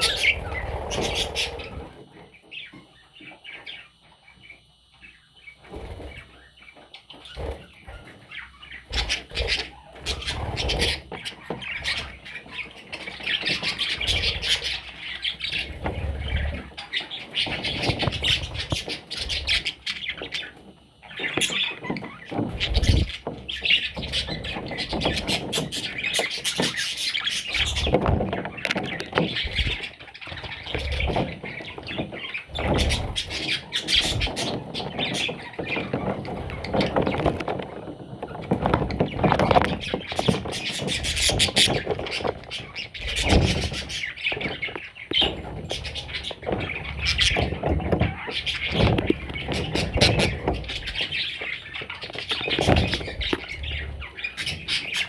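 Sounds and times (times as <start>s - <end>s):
parrot chicks chirping and squawking: 0.0s - 55.0s.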